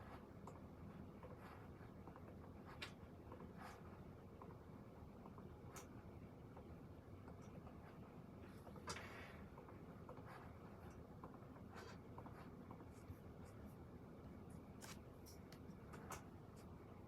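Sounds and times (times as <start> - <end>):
pen scratching on paper: 11.6 - 13.8.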